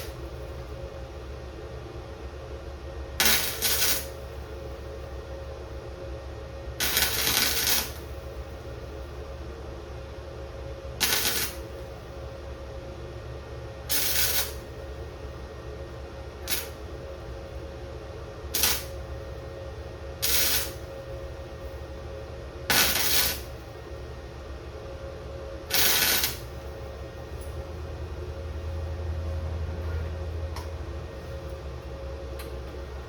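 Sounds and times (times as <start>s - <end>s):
steady welder hum: 0.0s - 33.0s
welder crackling bursts: 3.2s - 4.2s, 6.8s - 8.1s, 11.0s - 11.7s, 13.9s - 14.6s, 16.4s - 16.8s, 18.5s - 19.0s, 20.2s - 20.9s, 22.7s - 23.5s, 25.7s - 26.5s.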